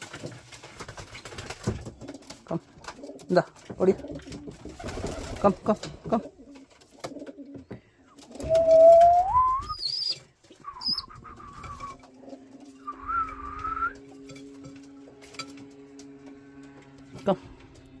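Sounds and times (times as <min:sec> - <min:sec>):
whistled calls: 0:08.4 - 0:12.0, 0:12.8 - 0:14.0
high chirps: 0:08.5 - 0:12.0.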